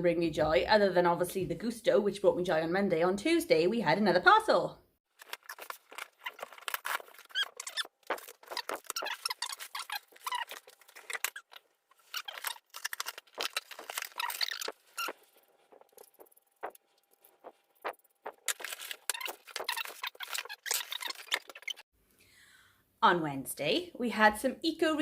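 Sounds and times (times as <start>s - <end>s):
packaging rustling and crinkling: 5.1s - 17.6s, 18.3s - 21.8s.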